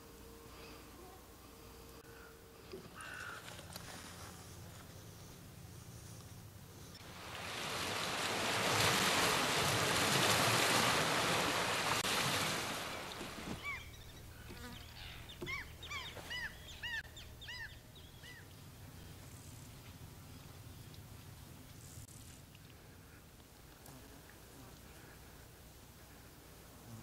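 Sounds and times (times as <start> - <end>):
broad rushing noise: 7.0 - 13.6
bird chirping: 13.1 - 19.6.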